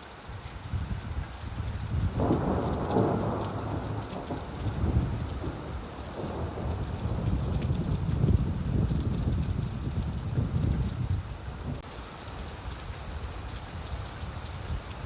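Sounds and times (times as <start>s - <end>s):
rain hissing: 0.0s - 15.0s
rolling thunder: 1.6s - 11.8s.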